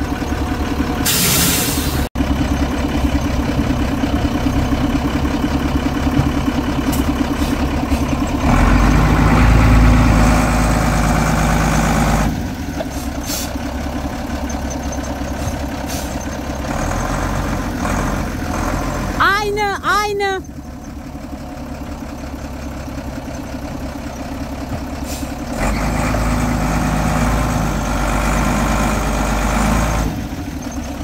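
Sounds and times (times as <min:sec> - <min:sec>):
vehicle engine revving: 0:02.5 - 0:14.2, 0:16.4 - 0:19.2, 0:25.5 - 0:30.7.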